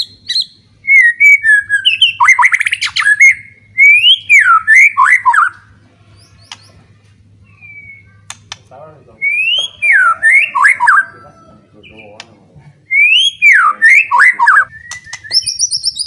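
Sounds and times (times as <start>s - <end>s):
bird singing whistled phrases: 0.0s - 5.6s, 7.5s - 8.2s, 9.2s - 11.2s, 12.9s - 16.0s.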